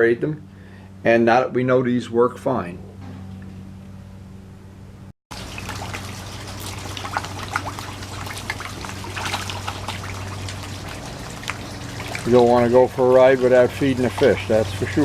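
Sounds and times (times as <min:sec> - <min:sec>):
steady low hum: 0:00.0 - 0:15.0
small splashes: 0:05.3 - 0:15.0
water trickling in pond: 0:05.3 - 0:15.0.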